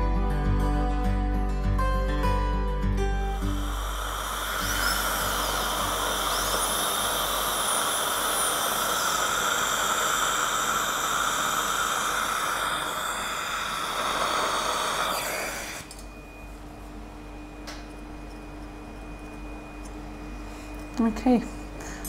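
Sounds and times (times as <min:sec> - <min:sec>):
dental drill whining: 0:03.0 - 0:16.1.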